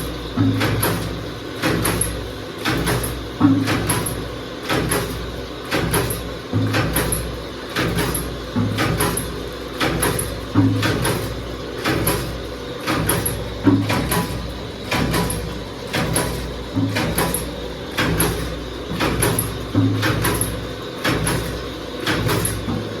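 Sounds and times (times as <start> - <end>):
machine motor hum: 0.0 - 23.0
machine press clunking: 5.8 - 23.0.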